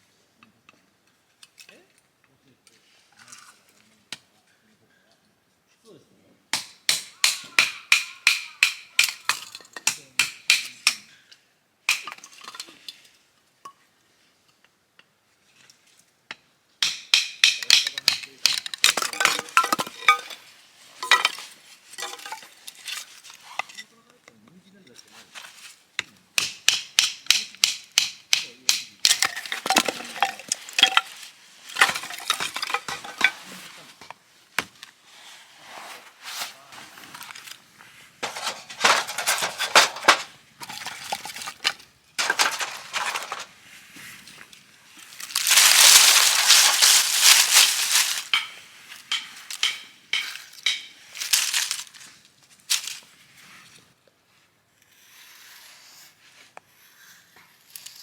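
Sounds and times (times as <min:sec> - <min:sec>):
crunching and scraping: 0:17.7 - 0:23.8, 0:29.1 - 0:34.1, 0:38.2 - 0:53.1
rustling: 0:17.9 - 0:23.7, 0:29.1 - 0:34.1, 0:34.7 - 0:53.1.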